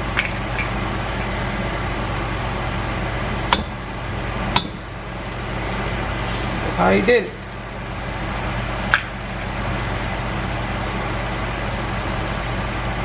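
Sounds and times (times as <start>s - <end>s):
food sizzling in a wok: 9.4s - 13.0s.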